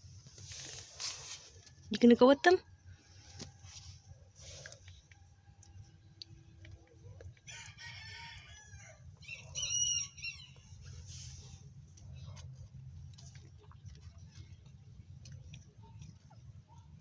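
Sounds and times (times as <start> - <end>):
rooster crowing: 7.5 - 10.7.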